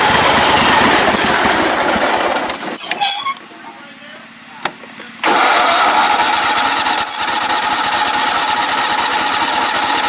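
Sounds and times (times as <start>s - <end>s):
lawn mower engine running: 0.0s - 3.4s, 4.4s - 10.0s.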